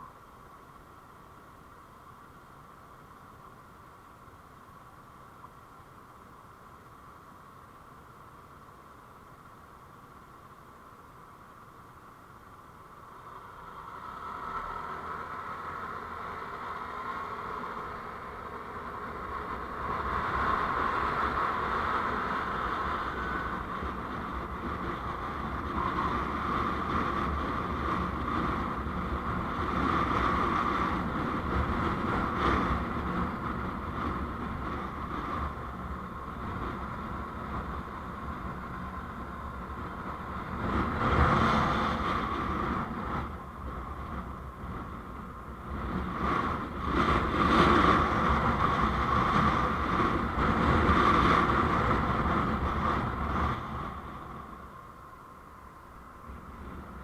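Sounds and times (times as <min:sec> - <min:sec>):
road vehicle rushing: 0:12.7 - 0:57.0.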